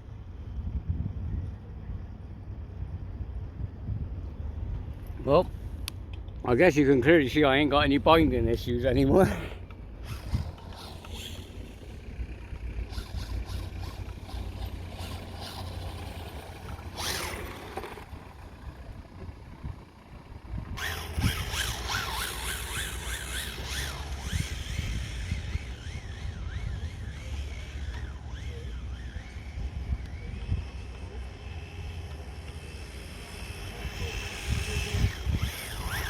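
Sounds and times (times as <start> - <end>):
steady low rumble: 0.0 - 36.0
rc car passing by: 6.5 - 36.0
rc car motor whining and revving: 9.1 - 18.8, 20.3 - 36.0.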